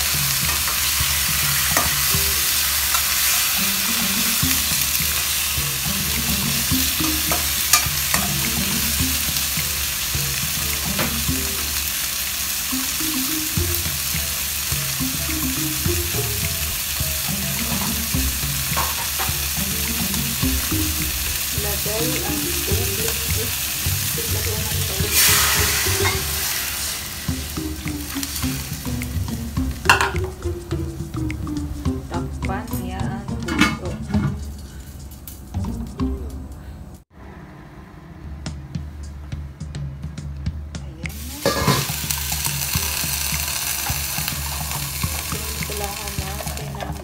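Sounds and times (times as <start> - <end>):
water hissing in hot pan: 0.0 - 31.4, 41.1 - 47.0
food sizzling in hot oil: 0.0 - 32.3, 41.1 - 47.0.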